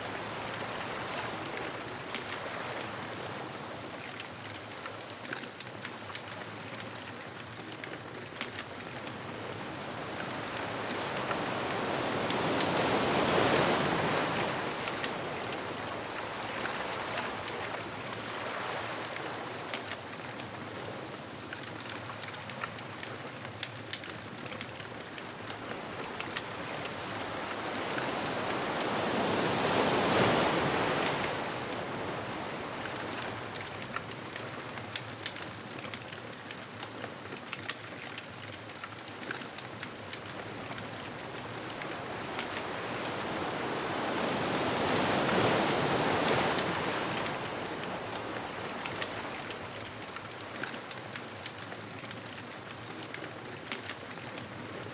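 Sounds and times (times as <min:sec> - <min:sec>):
bonfire crackling: 0:00.2 - 0:54.9
ocean waves breaking: 0:09.4 - 0:19.6, 0:25.4 - 0:34.0, 0:40.2 - 0:51.4.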